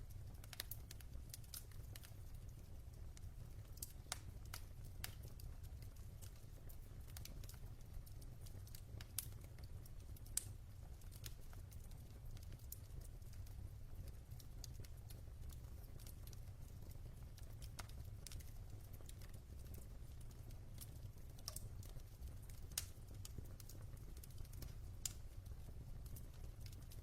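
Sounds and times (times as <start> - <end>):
logs crackling in fireplace: 0.0 - 27.0.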